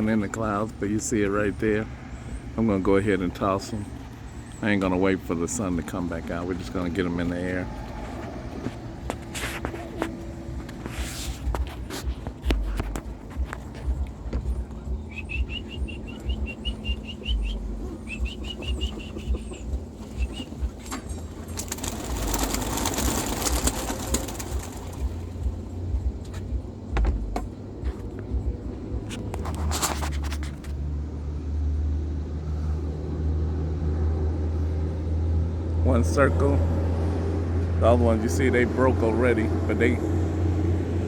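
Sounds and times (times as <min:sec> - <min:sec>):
low steady engine-like hum: 0:00.0 - 0:41.0
pigeon wings clattering: 0:07.8 - 0:25.6.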